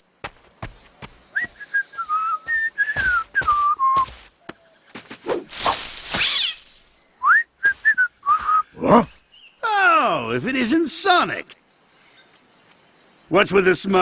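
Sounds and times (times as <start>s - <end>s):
person whistling a tune: 1.4s - 4.1s, 7.2s - 8.7s
upward-sliding whistle: 7.2s - 8.7s.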